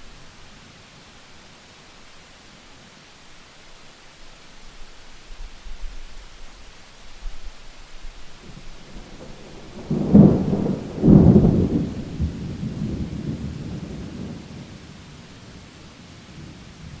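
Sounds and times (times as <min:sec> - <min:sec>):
steady rain: 0:00.0 - 0:17.0
thunder claps and rumble: 0:08.4 - 0:15.7.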